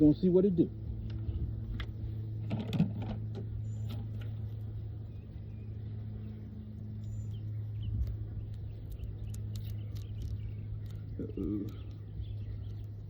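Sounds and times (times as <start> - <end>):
steady low hum: 0.0 - 13.0
knocks and rustles: 1.7 - 4.3.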